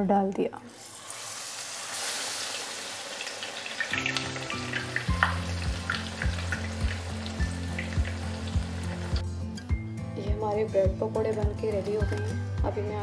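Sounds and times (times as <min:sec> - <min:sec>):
bread sizzling in hot oil: 0:00.7 - 0:09.2
background music with steady beat: 0:03.9 - 0:13.0.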